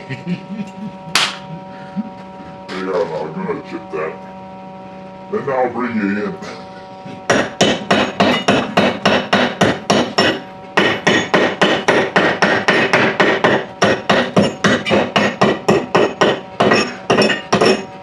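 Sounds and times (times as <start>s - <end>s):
hammer and chisel striking metal: 7.3s - 18.0s.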